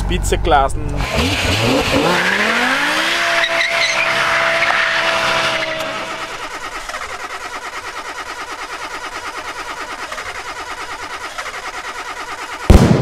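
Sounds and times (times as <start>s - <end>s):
car engine revving: 0.0s - 12.7s
small car engine idling: 0.0s - 12.7s
tyres squealing: 1.0s - 12.6s.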